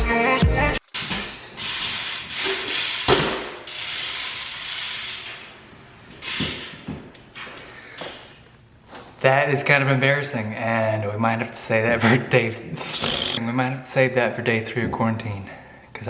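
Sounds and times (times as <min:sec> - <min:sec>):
bike freewheel ratcheting: 0:01.6 - 0:03.1, 0:03.7 - 0:05.5.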